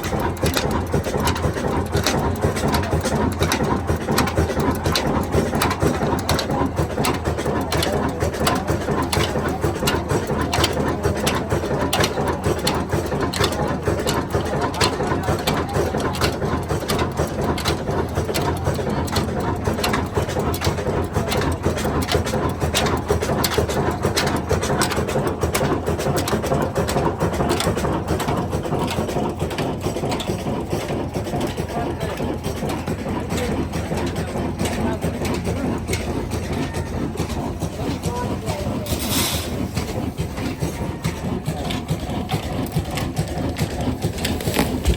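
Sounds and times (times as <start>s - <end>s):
diesel engine clattering: 0.0s - 44.9s.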